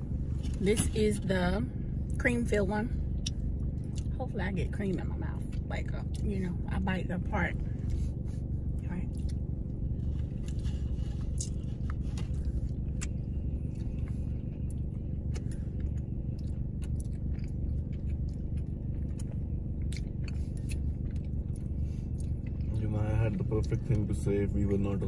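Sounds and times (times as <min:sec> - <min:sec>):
steady low rumble: 0:00.0 - 0:25.0
person chewing with mouth smacks: 0:10.0 - 0:22.8.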